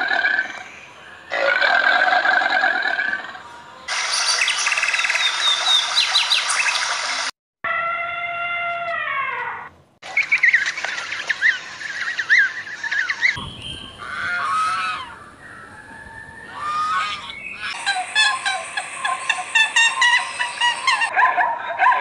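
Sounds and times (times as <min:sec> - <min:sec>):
falling bird call: 0:10.0 - 0:21.1
small birds chirping: 0:10.0 - 0:21.1
waterfowl honking: 0:10.2 - 0:15.2, 0:16.5 - 0:21.1.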